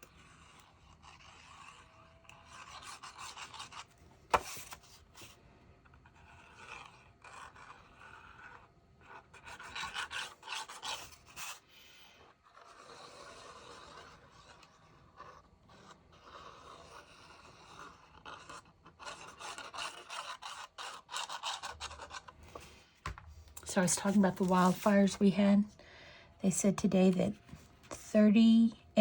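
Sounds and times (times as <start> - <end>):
paper and card rubbing: 9.3 - 22.9, 23.6 - 25.6.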